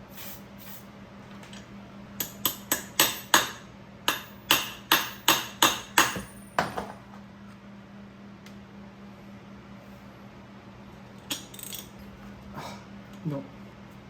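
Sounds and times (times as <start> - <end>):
hammer striking metal: 2.2 - 6.9.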